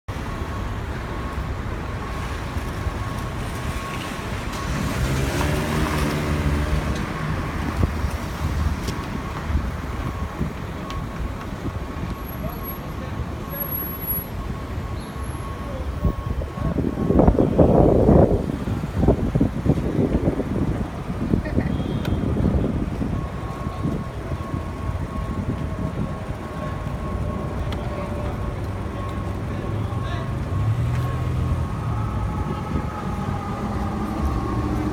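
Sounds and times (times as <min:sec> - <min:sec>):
road noise rumble: 0:00.1 - 0:34.9
vehicle engine passing: 0:03.4 - 0:09.2, 0:28.1 - 0:34.9.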